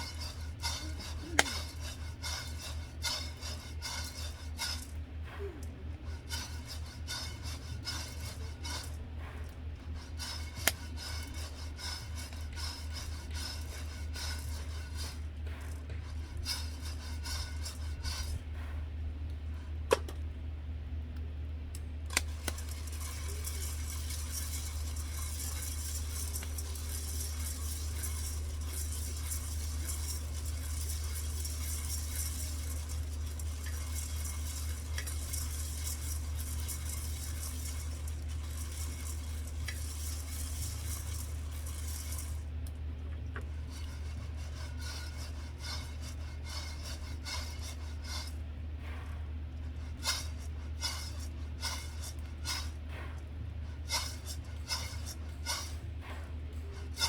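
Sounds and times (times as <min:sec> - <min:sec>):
utensils clinking on pan: 0:00.0 - 0:05.0, 0:06.1 - 0:08.9, 0:22.2 - 0:42.4, 0:43.7 - 0:48.4, 0:50.0 - 0:52.8, 0:53.8 - 0:55.8, 0:56.8 - 0:57.0
burner hum: 0:00.0 - 0:57.0.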